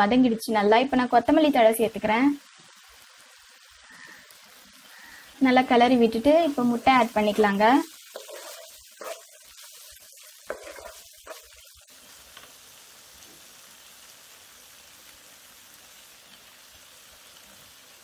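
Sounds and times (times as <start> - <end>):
masala sizzling in pan: 0.0 - 18.0
wooden spatula scraping pan: 7.0 - 11.7.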